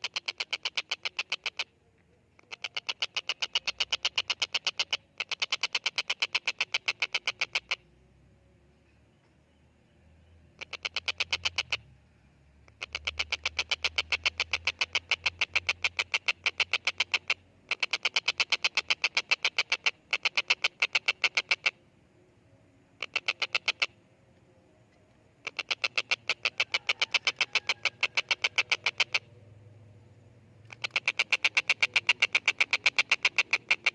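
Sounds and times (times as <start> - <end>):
kingfisher rattling call: 0.0 - 1.7, 2.4 - 7.8, 10.6 - 11.8, 12.7 - 21.8, 23.0 - 24.0, 25.4 - 29.4, 30.6 - 33.9.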